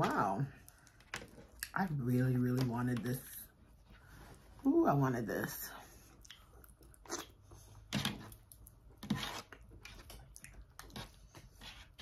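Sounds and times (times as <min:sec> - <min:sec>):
person chewing: 0:06.1 - 0:11.6.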